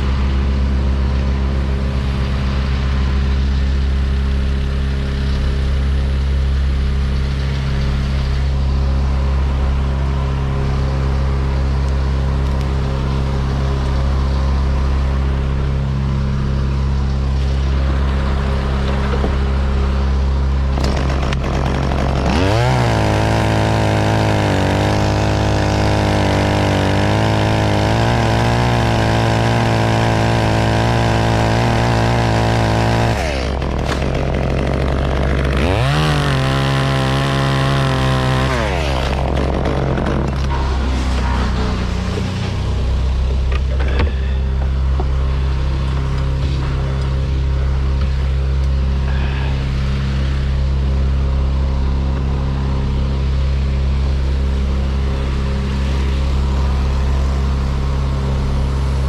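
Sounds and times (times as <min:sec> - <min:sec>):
low engine hum: 0:00.0 - 0:59.0
chainsaw revving: 0:17.3 - 0:59.0.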